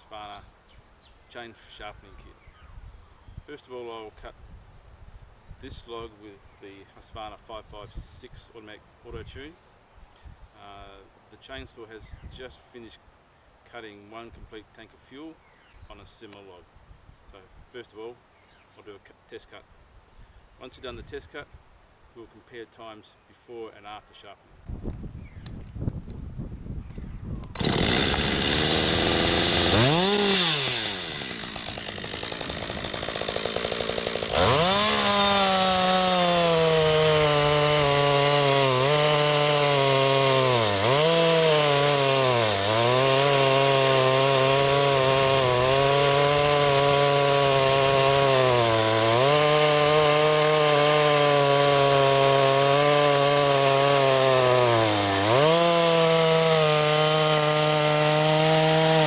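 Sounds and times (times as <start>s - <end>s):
chainsaw cutting log: 27.5s - 59.0s.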